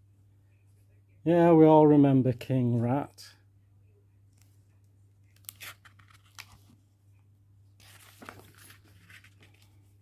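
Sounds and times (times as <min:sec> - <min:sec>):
low steady hum: 0:00.0 - 0:10.0
book pages rustling: 0:05.3 - 0:06.9, 0:07.8 - 0:10.0.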